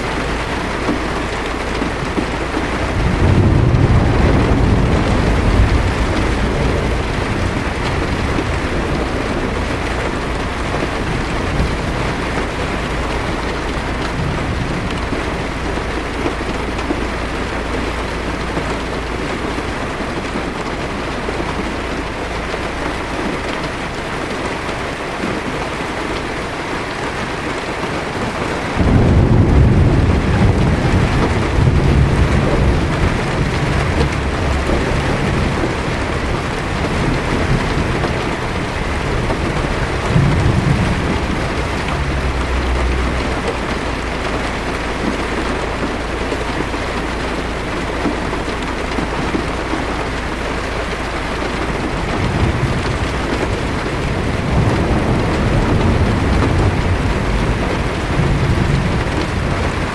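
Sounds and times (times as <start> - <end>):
heavy rain on a car: 0.0 - 59.9
thunder rumbling: 0.0 - 59.9
thunder peal: 0.9 - 20.6, 28.3 - 46.2, 51.6 - 59.9.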